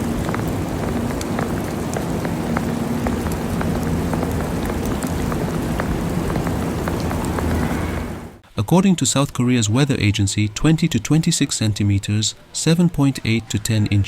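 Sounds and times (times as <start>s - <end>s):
drips and ticks: 0.0s - 7.8s
rain hiss: 0.0s - 8.5s.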